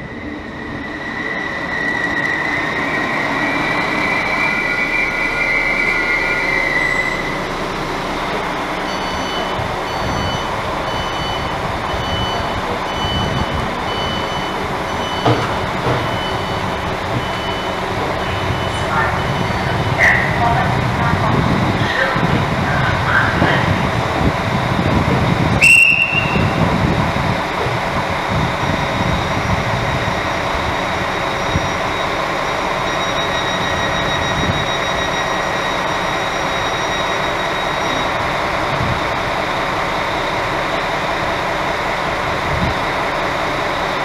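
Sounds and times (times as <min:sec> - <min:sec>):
diesel engine idling hum: 0:07.2 - 0:25.6
short high beep: 0:25.6 - 0:26.5.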